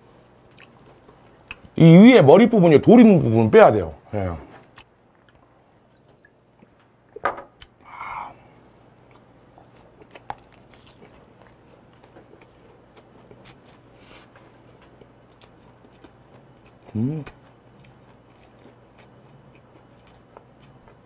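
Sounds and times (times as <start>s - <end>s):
breathy exhale: 7.8s - 8.5s.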